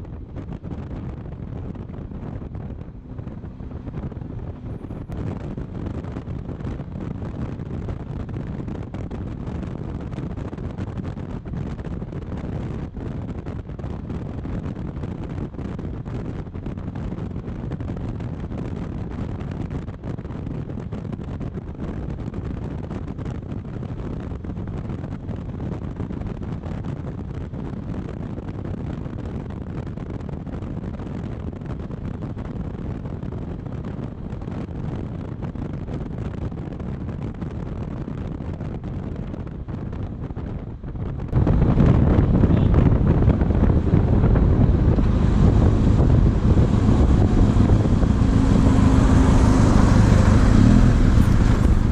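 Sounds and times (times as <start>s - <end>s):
road noise: 0.0s - 51.9s
wind buffeting microphone: 0.0s - 51.9s
motorcycle engine running: 41.4s - 51.9s.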